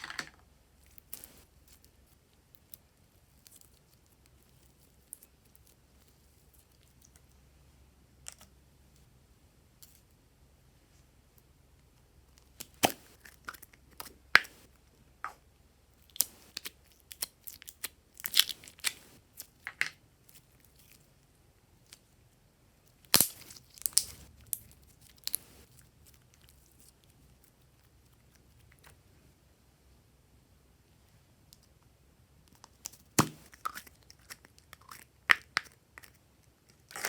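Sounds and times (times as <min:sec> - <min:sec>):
slime popping and crackling: 0:16.0 - 0:19.6, 0:23.0 - 0:26.6, 0:32.7 - 0:35.8.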